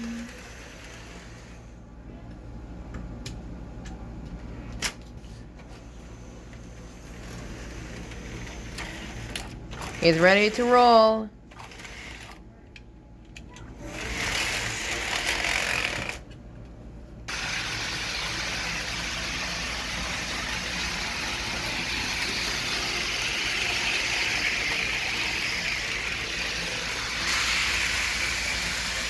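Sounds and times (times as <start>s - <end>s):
model train motor whirring: 0.0s - 1.7s, 6.0s - 10.6s, 11.5s - 12.4s, 13.8s - 16.2s, 17.3s - 29.0s.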